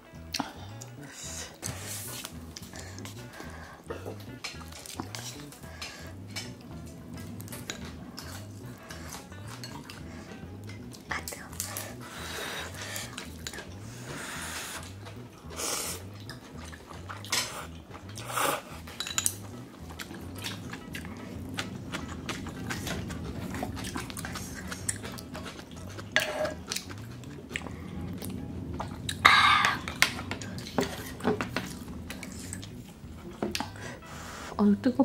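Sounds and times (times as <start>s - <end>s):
tableware clatter: 18.9s - 19.5s
tableware clinking: 18.9s - 19.5s.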